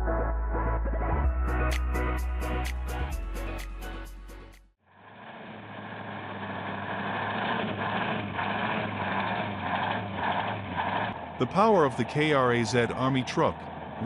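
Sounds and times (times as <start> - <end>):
background music: 0.0 - 4.7
truck diesel engine under load: 4.9 - 14.0.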